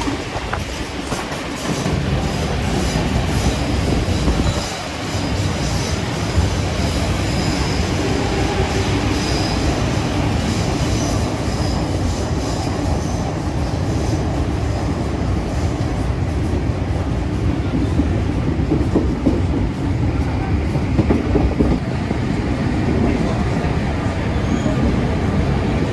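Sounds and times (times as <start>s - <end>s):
train wheels rumbling on track: 0.0s - 25.9s
high wheel squeal: 2.8s - 14.8s.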